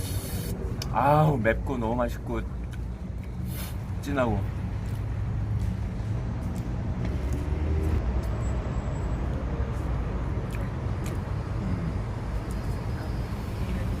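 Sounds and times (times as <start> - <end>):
vehicle road noise rumble: 0.0 - 14.0.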